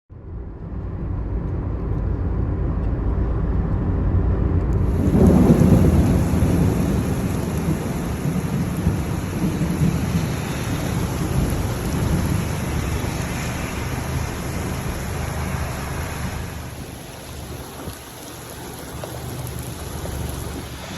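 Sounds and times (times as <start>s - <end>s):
rain hiss: 4.8s - 20.9s
thunder rumbling: 4.8s - 20.9s.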